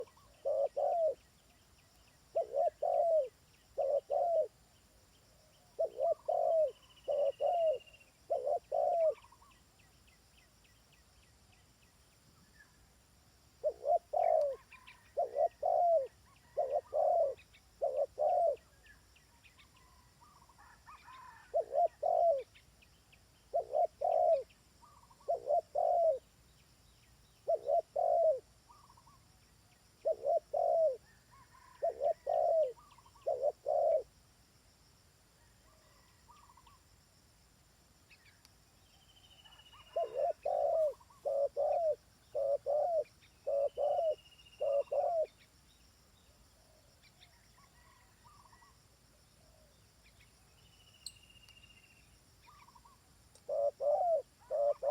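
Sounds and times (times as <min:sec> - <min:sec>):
dove cooing: 0:00.0 - 0:01.2, 0:02.3 - 0:04.6, 0:05.7 - 0:09.4, 0:13.6 - 0:18.8, 0:19.8 - 0:22.5, 0:23.5 - 0:26.3, 0:27.4 - 0:29.2, 0:30.0 - 0:34.1, 0:39.4 - 0:45.4, 0:47.6 - 0:48.7, 0:52.5 - 0:54.9
small birds chirping: 0:00.0 - 0:12.9, 0:13.6 - 0:20.5, 0:21.2 - 0:34.1, 0:38.0 - 0:48.8, 0:49.4 - 0:54.9.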